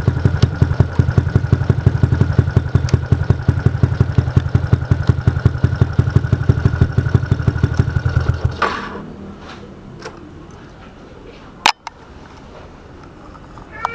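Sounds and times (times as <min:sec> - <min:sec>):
motorcycle engine idling: 0:00.0 - 0:08.6
engine stopping with a clack: 0:00.0 - 0:11.0.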